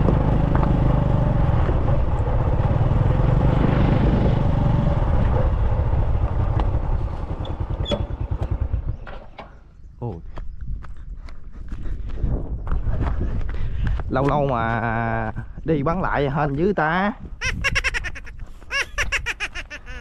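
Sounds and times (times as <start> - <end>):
motorbike engine running: 0.0 - 9.3.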